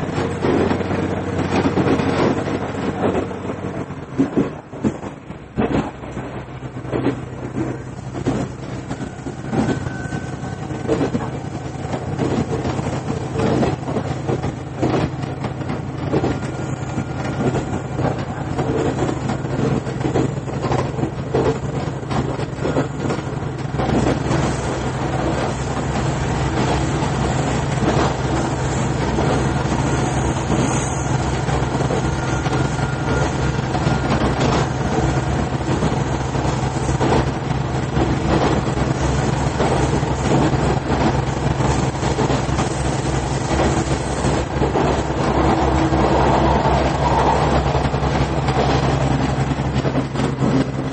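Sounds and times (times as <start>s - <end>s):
low engine drone: 0.0s - 50.9s
wheels clicking over rail joints: 0.0s - 50.9s.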